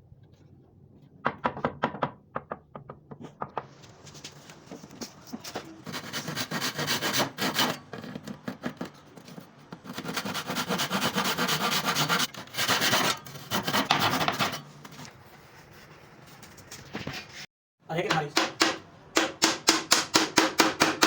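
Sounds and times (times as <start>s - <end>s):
wood being sanded by hand: 10.0s - 14.5s.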